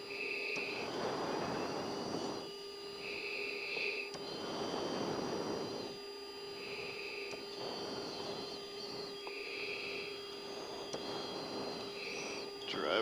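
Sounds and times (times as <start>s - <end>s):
faint high whine: 0.0s - 13.0s
steady electrical hum: 0.0s - 13.0s
breathing into mask microphone: 3.0s - 5.9s, 6.6s - 8.5s, 9.3s - 12.5s.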